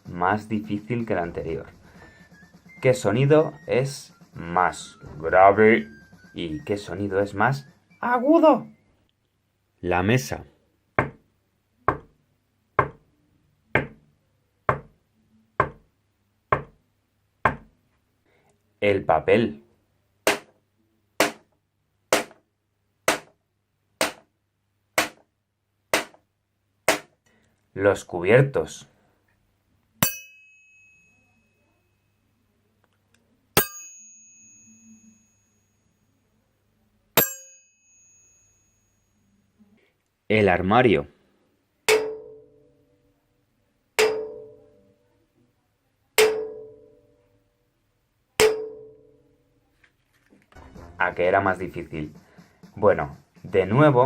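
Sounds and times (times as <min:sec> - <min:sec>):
paper being struck: 0:20.3 - 0:20.6, 0:21.2 - 0:21.5, 0:22.1 - 0:22.4, 0:23.1 - 0:23.4, 0:24.0 - 0:24.3, 0:25.0 - 0:25.3, 0:25.9 - 0:26.2, 0:26.9 - 0:27.2
metal cupboard struck ringing: 0:44.0 - 0:44.5.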